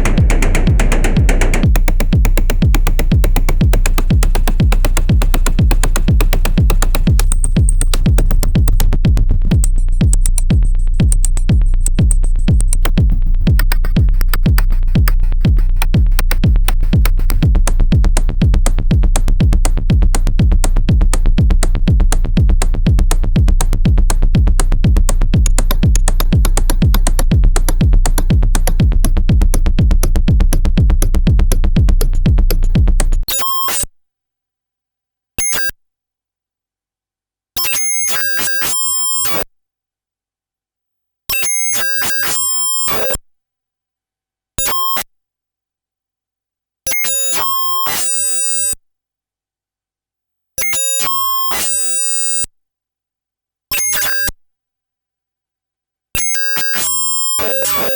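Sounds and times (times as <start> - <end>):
deep bass pulse: 0.0 - 33.2
glitchy synth clicks: 0.0 - 33.2.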